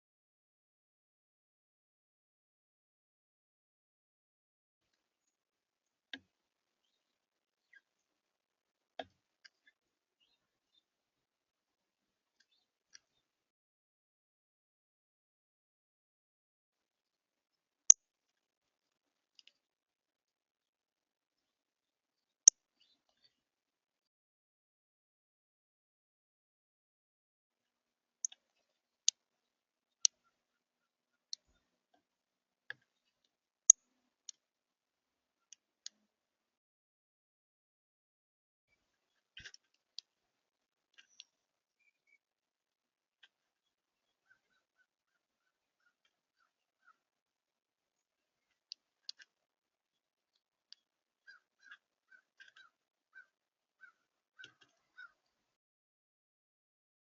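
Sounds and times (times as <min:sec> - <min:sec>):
faint short bird calls: 0:51.3 - 0:55.2.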